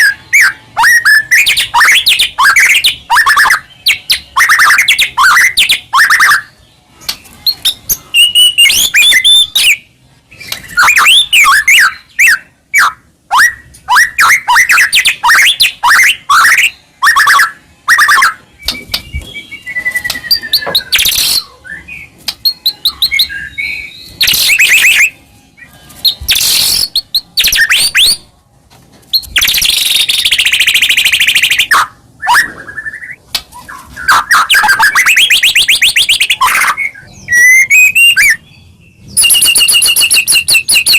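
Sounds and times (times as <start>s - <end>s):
songbird singing varied whistles: 7.4s - 25.2s, 26.0s - 28.3s, 29.1s - 40.9s.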